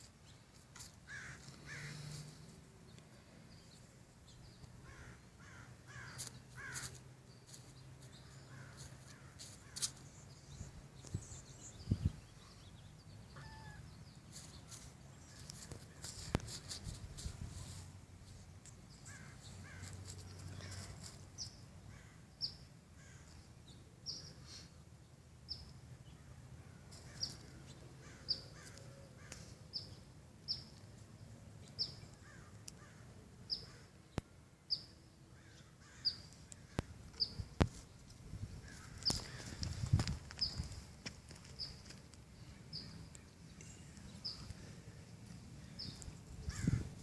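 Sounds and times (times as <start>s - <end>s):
bird calling in high notes: 13.3s - 13.9s.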